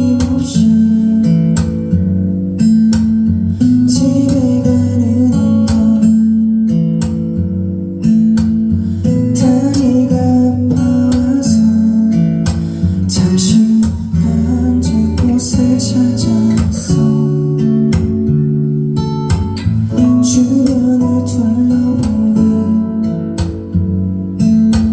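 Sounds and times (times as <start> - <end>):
acoustic guitar strumming: 0.0 - 24.9
person singing: 13.1 - 17.4, 19.9 - 23.0.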